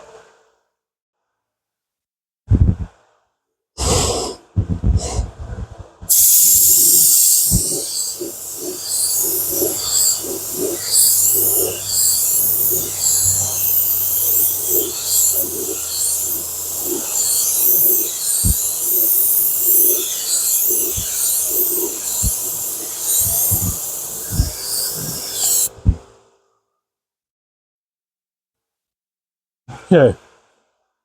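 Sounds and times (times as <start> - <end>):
paint spray gun hissing: 6.1 - 25.7.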